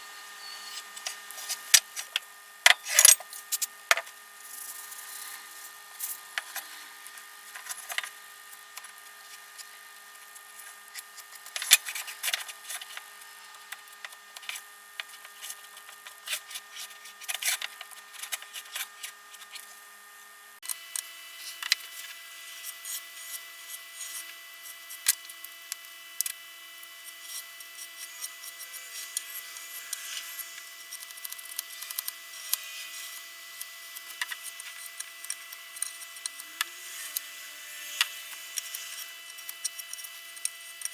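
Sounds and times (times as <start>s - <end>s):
hand tool scraping and rubbing: 0.1s - 3.7s.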